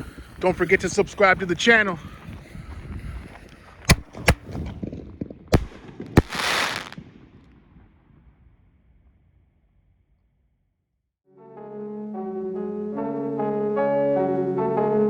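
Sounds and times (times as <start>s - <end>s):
firework hissing burst: 3.9s - 4.4s, 5.6s - 7.0s
firework bangs: 3.9s - 4.6s, 5.6s - 7.1s.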